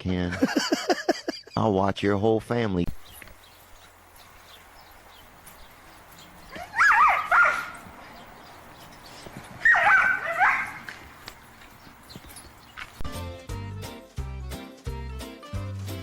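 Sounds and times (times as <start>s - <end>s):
dog whining and yipping: 6.3s - 7.9s, 8.8s - 11.0s.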